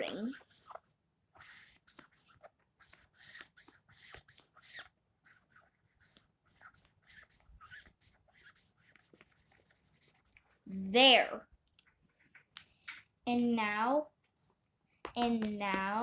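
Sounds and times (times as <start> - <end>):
coloring tool scratching on paper: 0.0 - 10.7.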